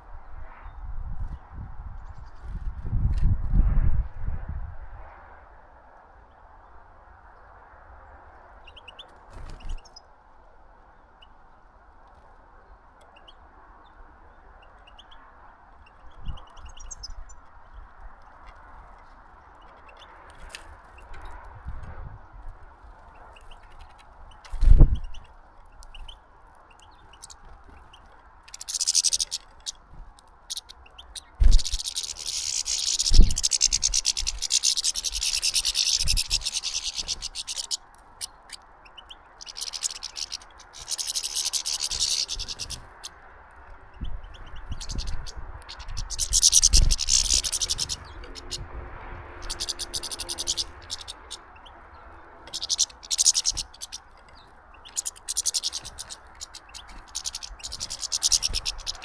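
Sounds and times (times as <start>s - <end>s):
scratching and rustling at bird feeder: 22.6s - 38.3s, 39.4s - 43.0s.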